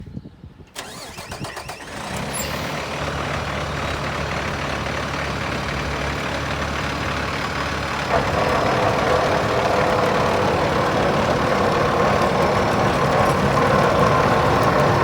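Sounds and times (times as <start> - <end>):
truck starter cranking: 0.8 - 2.8, 8.0 - 15.0
diesel engine idling: 1.6 - 15.0.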